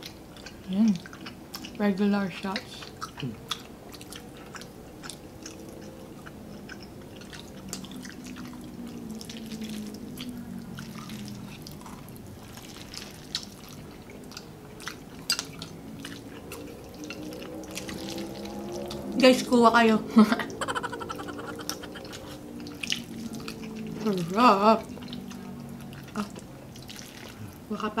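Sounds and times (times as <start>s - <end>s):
people chewing: 0.0s - 28.0s.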